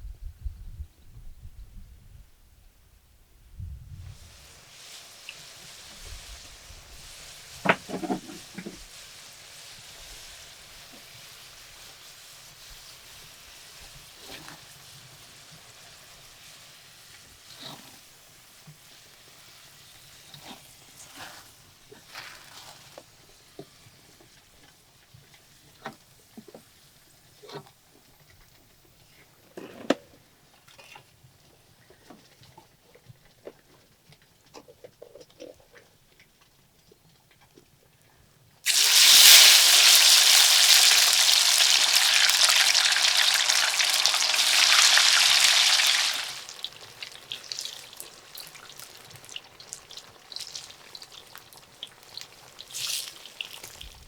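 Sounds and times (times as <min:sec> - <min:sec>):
food sizzling in hot oil: 0:04.1 - 0:20.4, 0:38.7 - 0:54.0.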